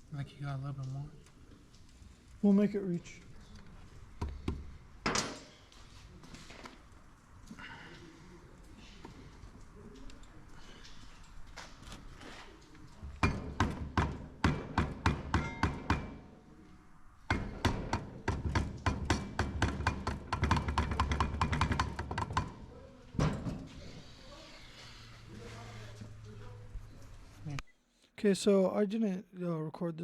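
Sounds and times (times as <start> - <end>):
rapid sharp knocks: 13.2 - 16.2, 17.3 - 22.6.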